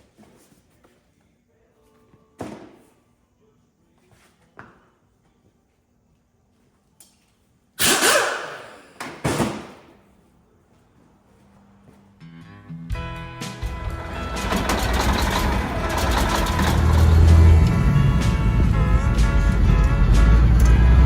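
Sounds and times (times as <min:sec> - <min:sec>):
loud ringing bangs: 0:14.0 - 0:21.0.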